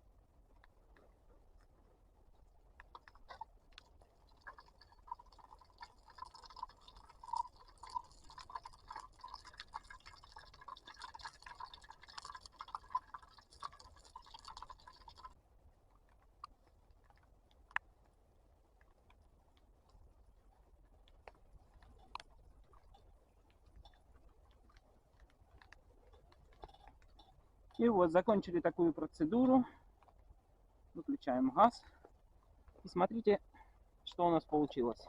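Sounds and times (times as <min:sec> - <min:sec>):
wet crackling of wax: 0:18.8 - 0:27.8.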